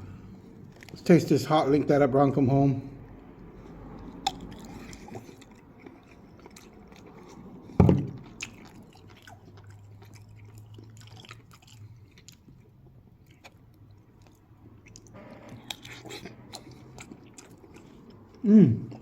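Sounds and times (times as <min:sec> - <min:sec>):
person chewing food: 0:00.2 - 0:01.0, 0:03.1 - 0:19.0.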